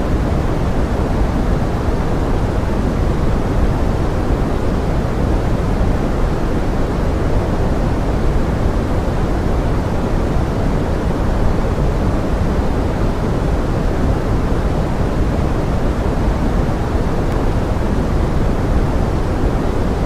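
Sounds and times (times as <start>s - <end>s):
pink noise: 0.0s - 20.0s.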